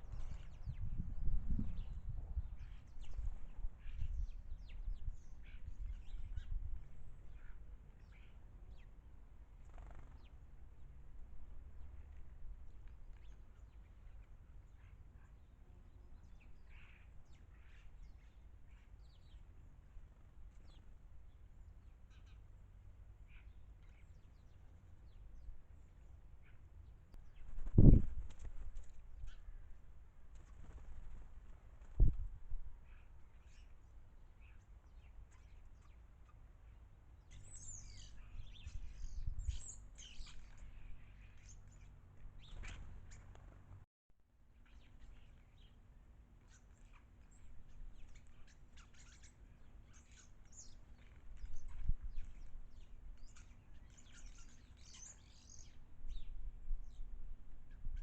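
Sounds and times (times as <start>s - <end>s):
birds chirping: 32.8s - 43.8s, 46.5s - 57.0s.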